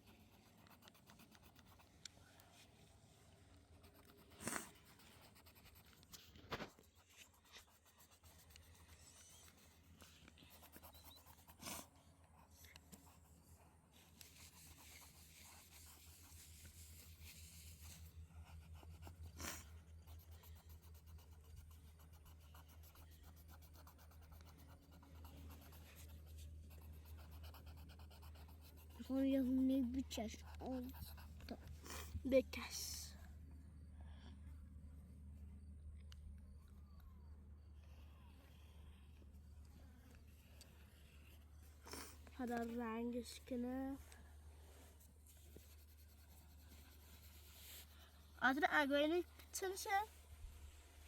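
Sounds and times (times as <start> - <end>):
pencil scratching on paper: 0.0 - 2.0, 3.8 - 32.8, 45.0 - 50.1
faint low hum: 0.0 - 51.0.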